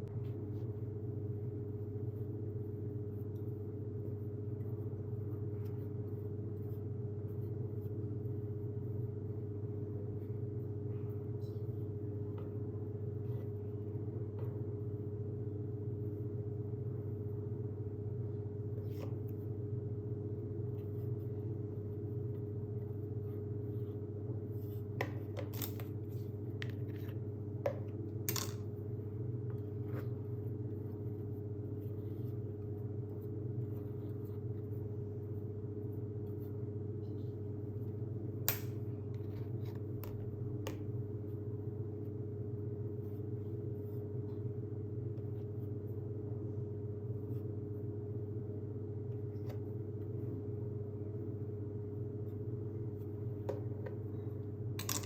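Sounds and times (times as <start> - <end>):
low background hum: 0.0 - 55.0.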